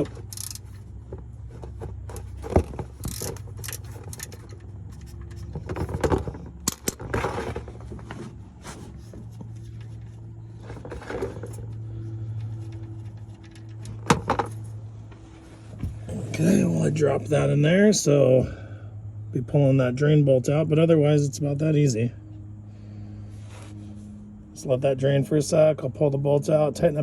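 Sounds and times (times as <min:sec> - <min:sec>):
metal tools clinking and scraping: 0:00.0 - 0:01.0, 0:01.6 - 0:15.3
low hum: 0:00.0 - 0:27.0
socket wrench clicking: 0:00.2 - 0:00.7.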